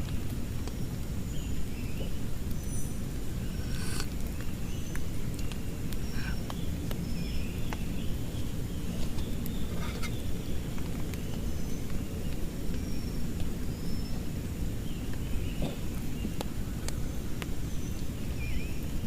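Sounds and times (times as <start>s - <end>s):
animals chirping: 1.9s - 8.2s, 15.0s - 16.4s
water drips clicking: 4.1s - 7.9s.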